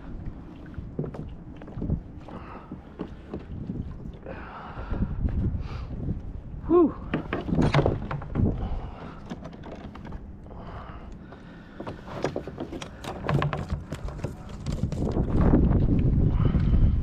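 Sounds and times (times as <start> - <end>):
wind buffeting the microphone: 0.0 - 12.0, 12.8 - 17.0
clicks and knocks on a kayak: 0.9 - 4.2, 7.0 - 16.8.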